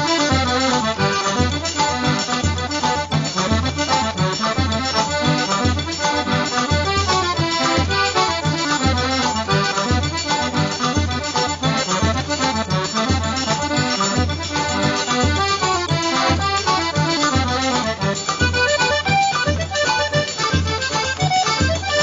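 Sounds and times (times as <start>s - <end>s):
accordion-led traditional music: 0.0s - 22.0s.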